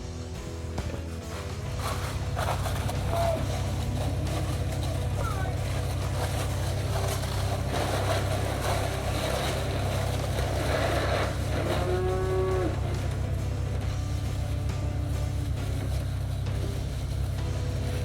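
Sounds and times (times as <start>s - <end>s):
steady low rumble: 0.0s - 18.0s
cow mooing: 7.0s - 13.7s.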